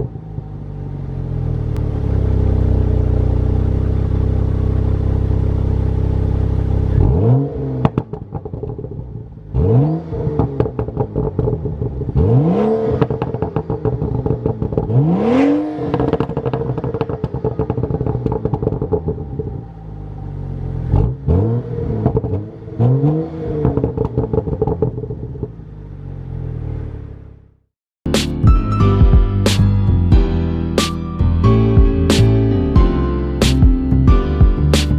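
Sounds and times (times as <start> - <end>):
car engine idling and revving: 0.0 - 27.7
music: 28.1 - 34.9.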